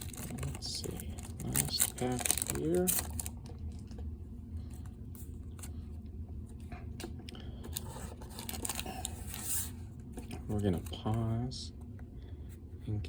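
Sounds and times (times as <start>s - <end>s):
foil wrapper rustling and clicks: 0.0s - 4.0s, 7.7s - 9.4s
low steady hum: 0.0s - 13.0s.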